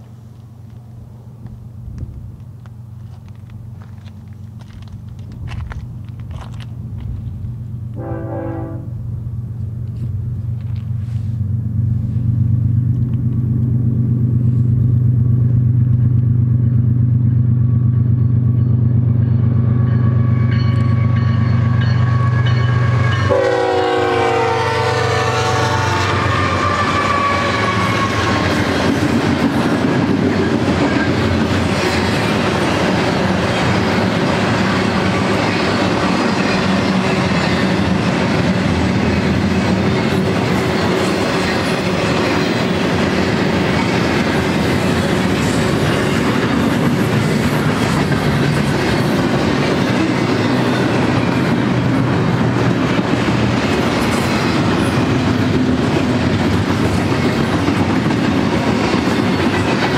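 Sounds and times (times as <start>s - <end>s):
diesel locomotive engine drone: 0.0s - 59.9s
freight cars rumbling over rails: 0.0s - 59.9s
train horn blast: 7.9s - 9.0s, 22.2s - 28.6s.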